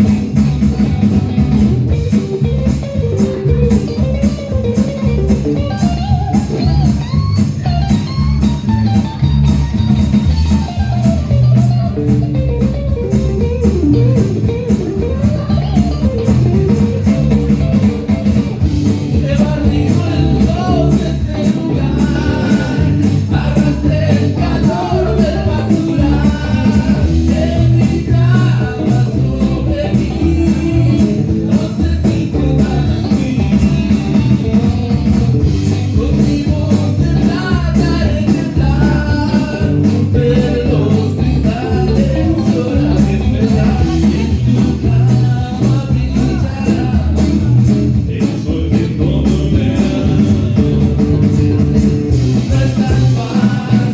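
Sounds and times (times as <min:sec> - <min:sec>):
rock band playing: 0:00.0 - 0:53.9
person singing: 0:14.7 - 0:53.9.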